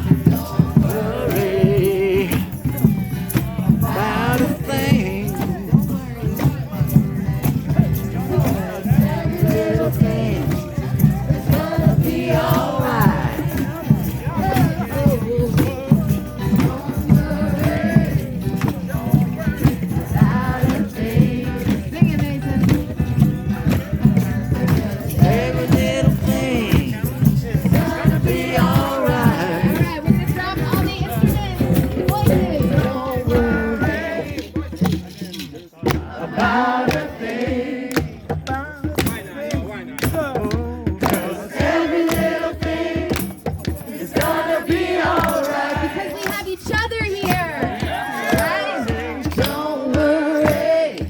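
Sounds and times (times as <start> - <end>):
group of voices singing: 0.0 - 51.0
hand drums beating: 0.0 - 51.0.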